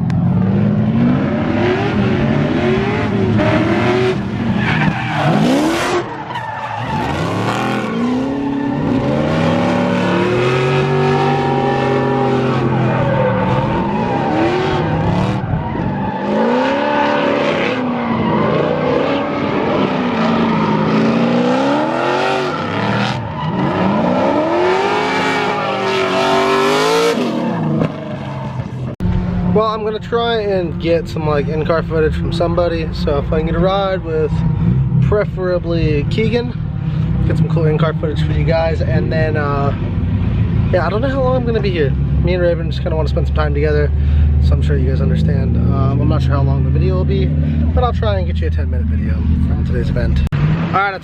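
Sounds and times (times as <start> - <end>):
car engines revving: 0.0 - 51.0
tyre squeal: 4.6 - 19.3.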